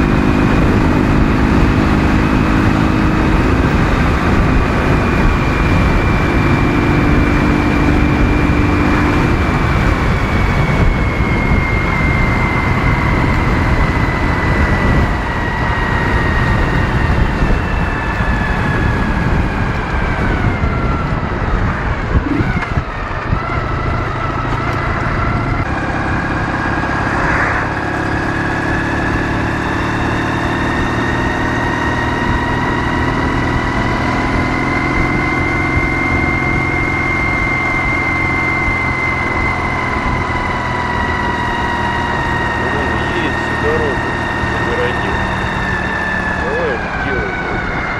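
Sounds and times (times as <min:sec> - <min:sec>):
motorcycle engine running: 0:00.0 - 0:47.9
wind and road rush: 0:00.0 - 0:47.9.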